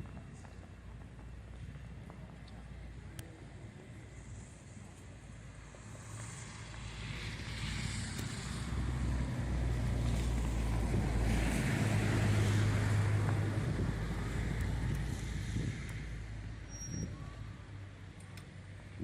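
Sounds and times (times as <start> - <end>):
wind buffeting microphone: 8.6 - 16.4.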